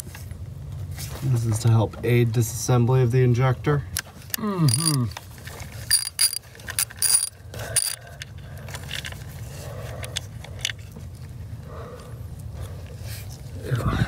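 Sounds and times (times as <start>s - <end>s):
tool clicks: 4.7s - 5.0s, 5.9s - 8.0s.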